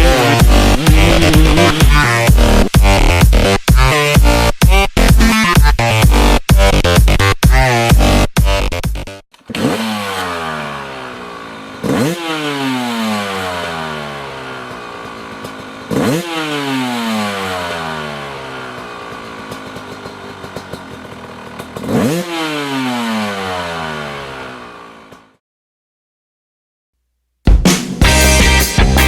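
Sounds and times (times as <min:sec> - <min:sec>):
dirt bike engine revving: 0:00.0 - 0:25.4.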